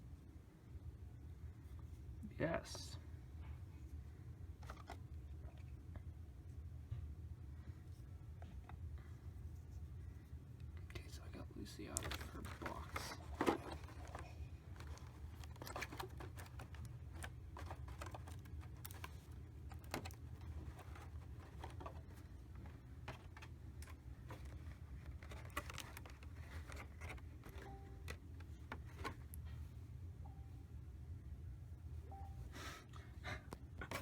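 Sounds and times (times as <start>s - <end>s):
steady low hum: 0.0s - 34.0s
plastic figure clicks and rustles: 11.9s - 29.3s.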